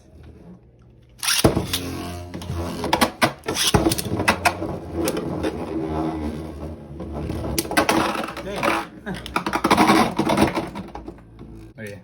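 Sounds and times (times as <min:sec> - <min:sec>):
spinning tops whirring: 0:01.2 - 0:04.2.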